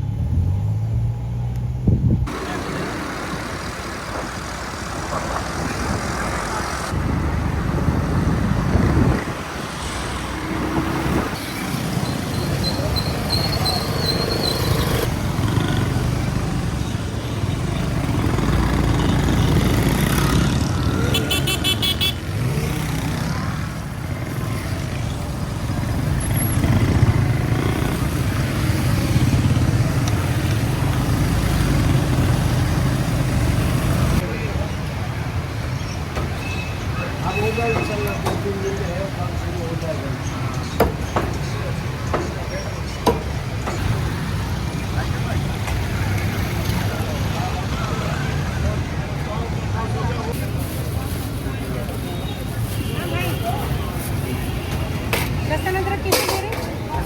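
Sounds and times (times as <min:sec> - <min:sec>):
car and motorcycle engines: 0:00.0 - 0:57.0
car horns tooting: 0:20.8 - 0:22.4.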